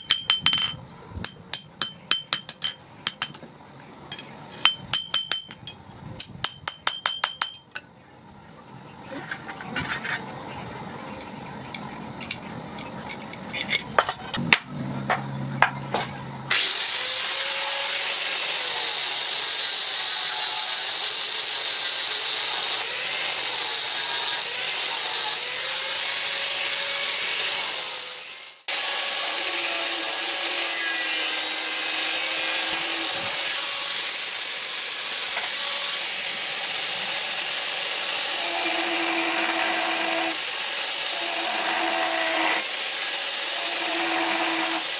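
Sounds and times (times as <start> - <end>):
power tool against steel blade: 16.5 - 44.9.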